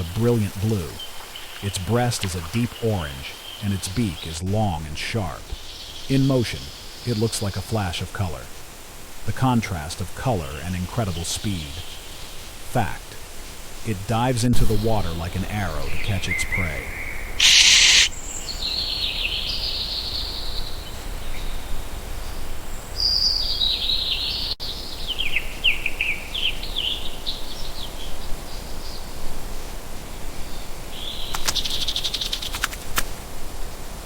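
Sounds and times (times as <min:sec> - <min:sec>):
birds chirping: 0:00.0 - 0:13.2, 0:13.8 - 0:29.3, 0:30.3 - 0:33.2
background hiss: 0:00.0 - 0:34.0
sharp clicks: 0:17.4 - 0:18.1.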